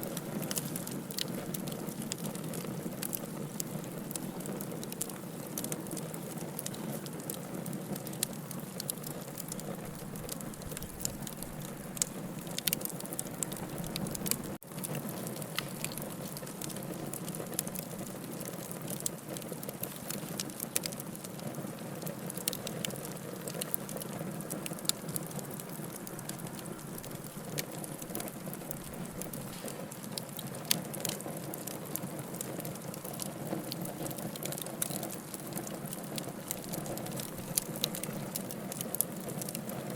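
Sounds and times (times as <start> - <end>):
wood fire pops and crackles: 0.0 - 39.9
fire flames rushing: 8.8 - 21.3.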